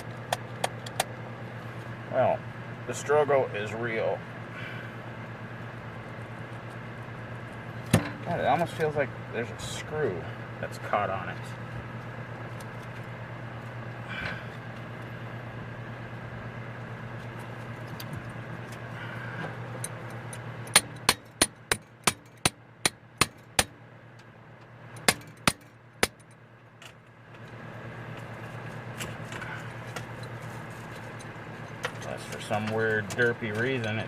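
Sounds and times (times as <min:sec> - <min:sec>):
sharp metal taps: 0:20.7 - 0:23.8, 0:25.0 - 0:26.4.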